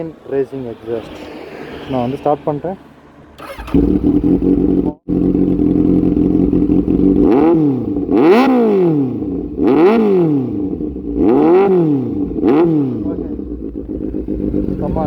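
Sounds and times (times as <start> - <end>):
motorcycle engine revving: 0.6 - 15.0
motorcycle engine idling: 3.4 - 15.0.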